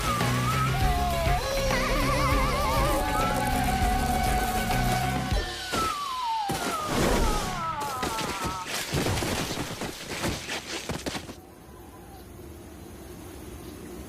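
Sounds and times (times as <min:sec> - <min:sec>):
cartoon falling whistle: 0:05.4 - 0:08.6.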